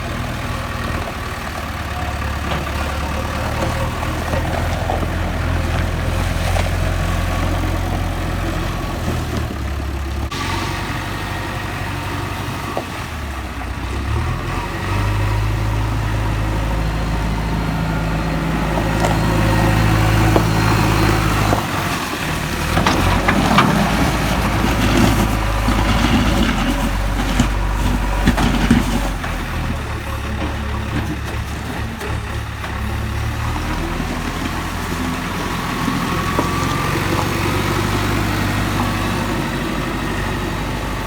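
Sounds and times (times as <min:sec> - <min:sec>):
backhoe diesel engine working: 0:00.0 - 0:41.0
stone and sand rattling: 0:20.2 - 0:32.0.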